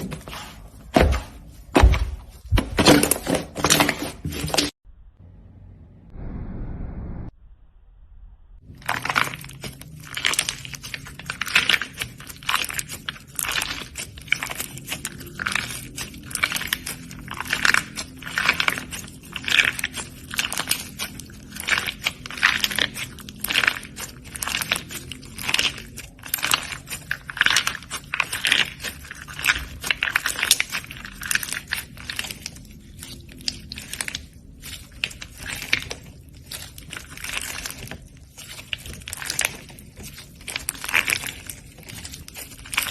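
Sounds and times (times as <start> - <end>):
slime crackling and popping: 8.6 - 42.9.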